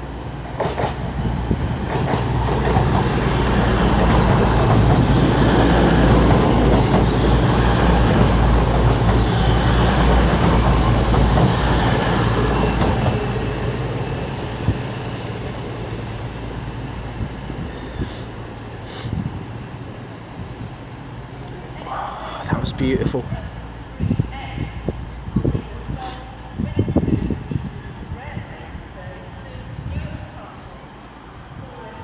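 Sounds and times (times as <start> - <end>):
train wheels rumbling on rail: 0.0 - 21.7.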